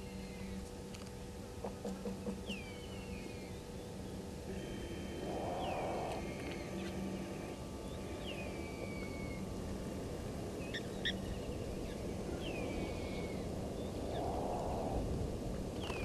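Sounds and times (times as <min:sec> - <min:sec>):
low outdoor rumble: 0:00.0 - 0:16.0
bird whistling call: 0:05.2 - 0:07.0, 0:07.9 - 0:09.4.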